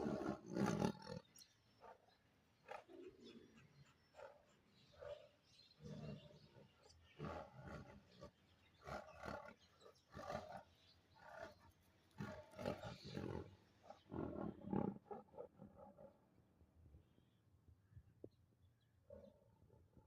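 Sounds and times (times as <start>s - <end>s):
tiger roaring: 0.0s - 1.1s.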